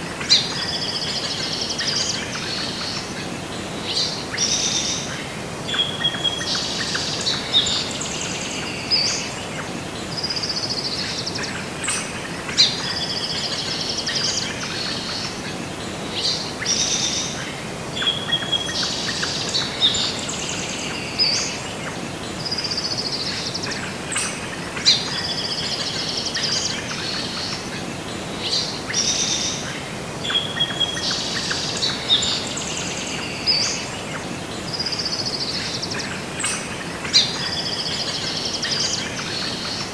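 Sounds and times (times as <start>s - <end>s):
songbirds chirping and whistling: 18.0s - 39.9s.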